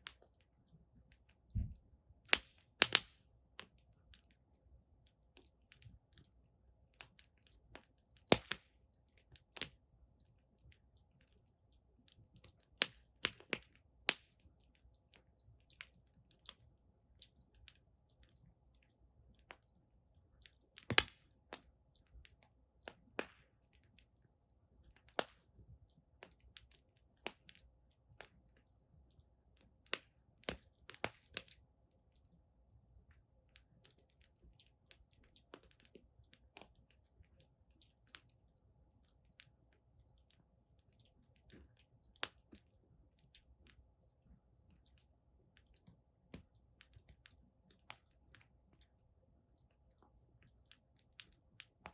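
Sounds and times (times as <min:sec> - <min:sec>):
firewood crackling and popping: 0:01.1 - 0:04.4, 0:07.0 - 0:11.4, 0:12.0 - 0:19.8, 0:20.4 - 0:24.2, 0:24.8 - 0:28.7, 0:29.8 - 0:31.6, 0:41.0 - 0:48.8.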